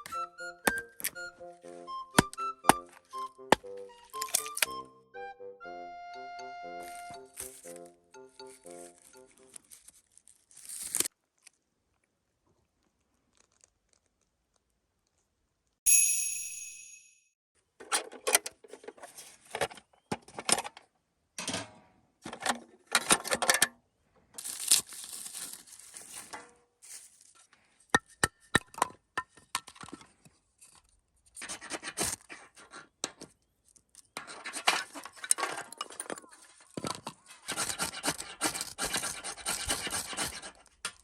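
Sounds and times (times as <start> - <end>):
rustling and tearing: 6.8 - 7.9, 8.7 - 12.0, 12.8 - 14.7, 24.4 - 27.7, 36.3 - 41.0.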